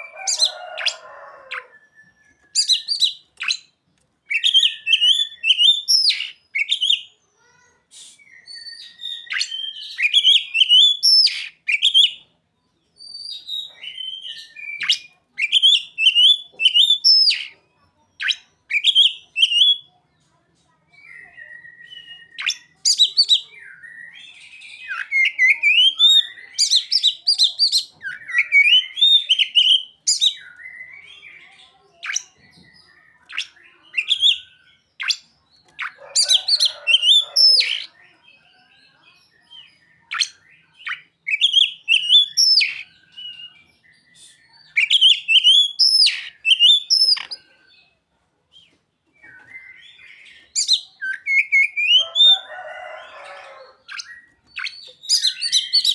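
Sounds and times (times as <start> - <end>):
songbird singing chirps and whistles: 0.0 - 55.9.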